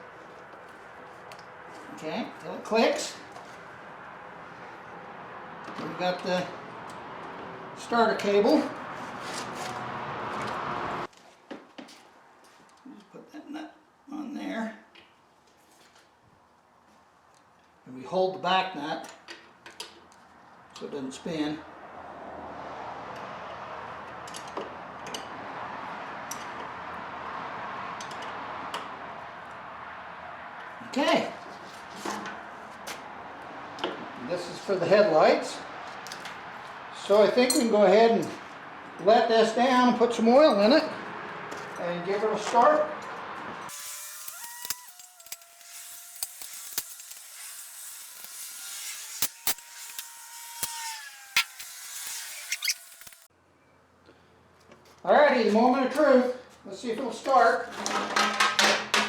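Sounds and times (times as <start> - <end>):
metal tools clicking and knocking: 24.2 - 25.3
wrench metallic clicks: 43.7 - 48.4, 49.2 - 53.3.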